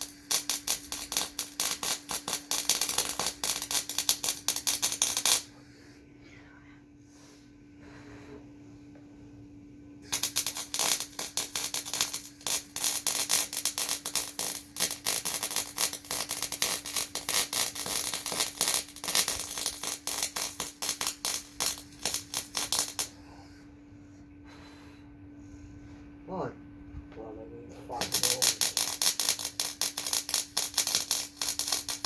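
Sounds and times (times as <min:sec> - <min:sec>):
welding arc crackling: 0:00.0 - 0:05.5, 0:10.0 - 0:23.1, 0:27.9 - 0:32.0
steady electrical hum: 0:00.0 - 0:32.0.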